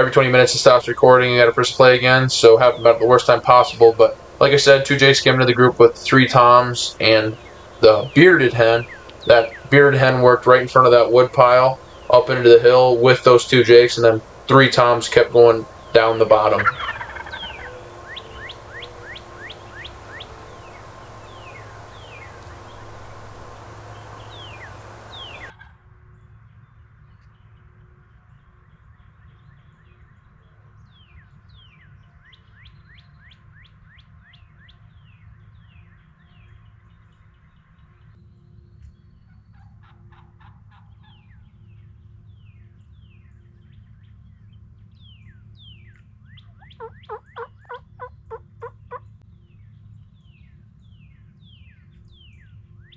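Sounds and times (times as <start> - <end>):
songbirds chirping: 0.0 - 25.5
steady hiss: 0.0 - 25.5
wild turkey calling: 0.0 - 25.5, 46.5 - 49.0.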